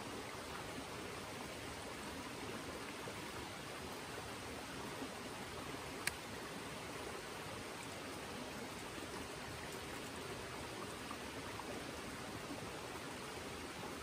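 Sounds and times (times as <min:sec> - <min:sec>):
river flowing: 0:00.0 - 0:14.0.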